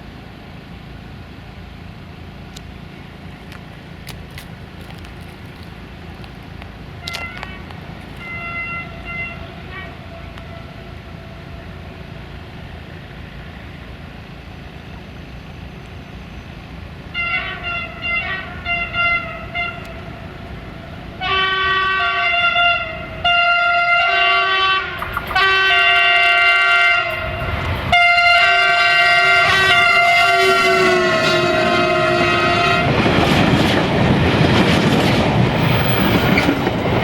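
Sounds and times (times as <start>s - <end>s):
train rumbling: 0.0s - 37.0s
locomotive horn blasts: 8.2s - 11.6s, 17.1s - 20.3s, 21.2s - 33.1s.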